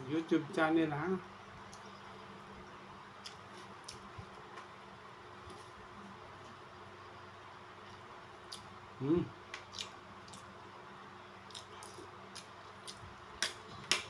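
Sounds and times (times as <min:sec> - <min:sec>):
person chewing food: 0:03.2 - 0:04.5, 0:07.8 - 0:08.7, 0:09.6 - 0:10.6, 0:11.4 - 0:14.0.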